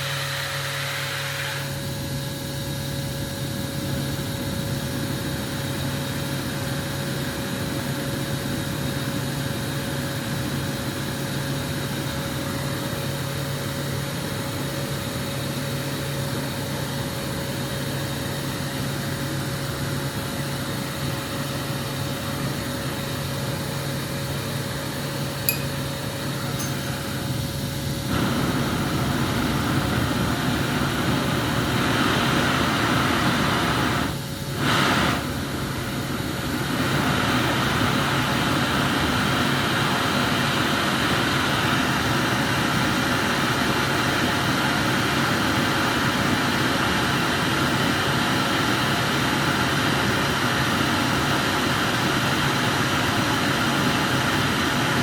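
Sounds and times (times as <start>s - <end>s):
gas burner flame hissing: 0.0s - 55.0s
faint glass clinks: 25.5s - 25.9s, 26.6s - 27.0s.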